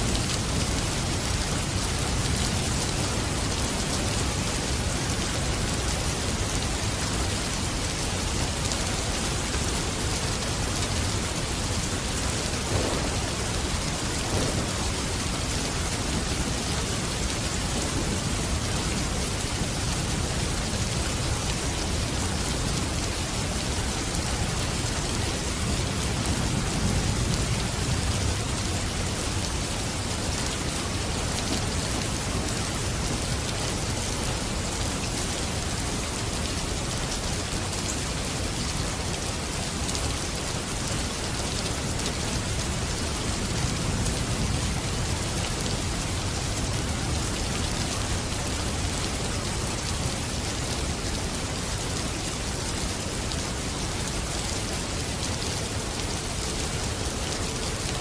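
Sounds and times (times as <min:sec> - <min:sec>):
rain falling: 0:00.0 - 0:58.0
thunder rumble: 0:11.8 - 0:19.1.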